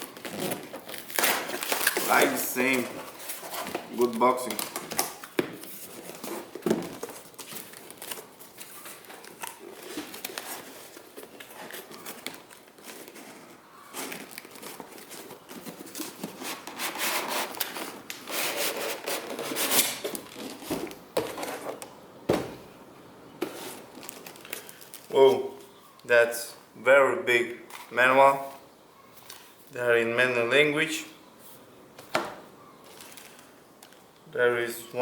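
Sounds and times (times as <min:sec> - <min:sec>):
cardboard and wrapping crinkling: 0:00.0 - 0:21.8, 0:23.4 - 0:25.2, 0:32.7 - 0:34.1.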